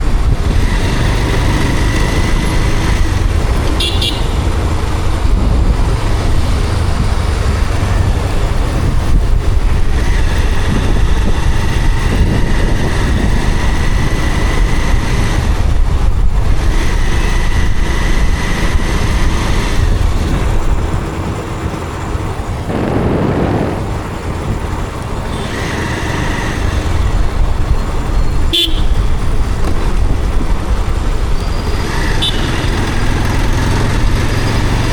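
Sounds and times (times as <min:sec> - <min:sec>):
motorcycle engine rumble: 0:00.0 - 0:34.9
wind: 0:00.0 - 0:34.9
vehicle horns: 0:03.7 - 0:04.6, 0:25.3 - 0:26.6, 0:28.5 - 0:29.3, 0:31.6 - 0:33.1.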